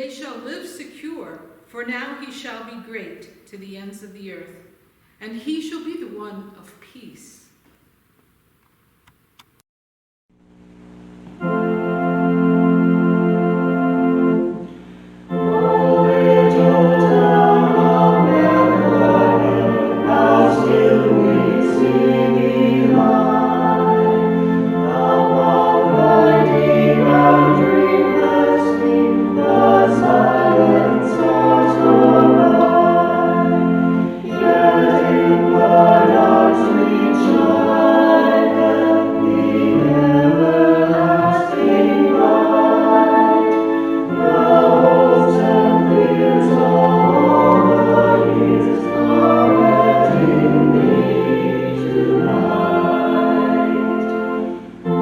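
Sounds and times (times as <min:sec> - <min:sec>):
choir singing a hymn: 0:15.3 - 0:55.0.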